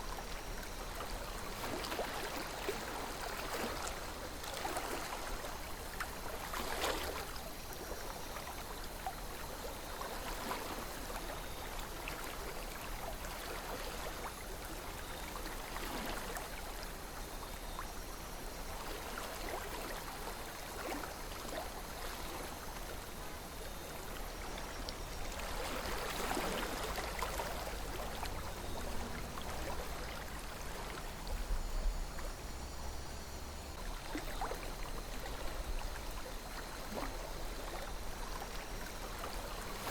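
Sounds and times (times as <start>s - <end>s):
river water rushing and gurgling: 21.8s - 39.9s.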